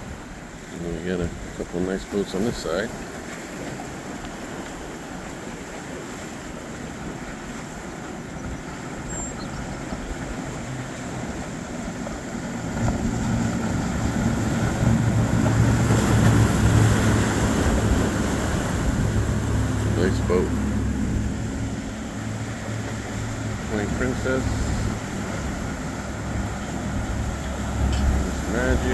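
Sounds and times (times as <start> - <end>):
boat engine drone: 0.0 - 28.9
water noise: 0.0 - 28.9
wind: 0.0 - 28.9.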